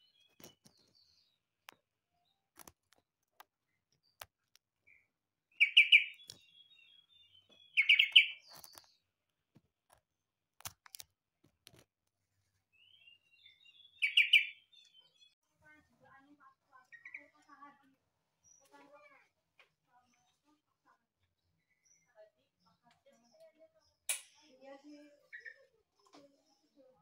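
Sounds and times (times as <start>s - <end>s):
bulbul singing: 4.9s - 9.0s, 12.8s - 15.4s.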